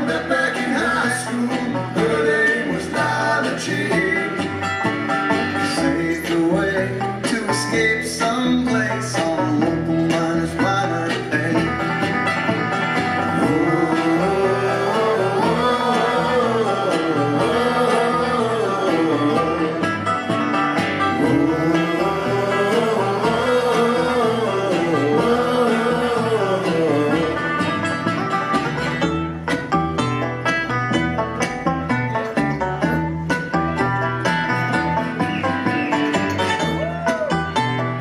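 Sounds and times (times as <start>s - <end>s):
bluegrass string band playing: 0.0s - 38.0s.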